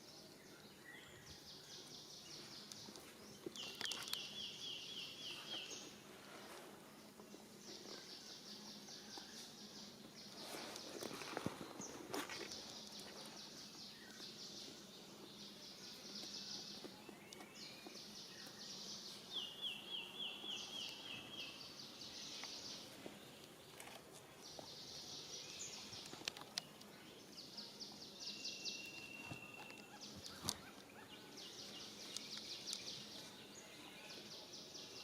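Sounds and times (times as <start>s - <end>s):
faint clicks: 26.0s - 27.0s.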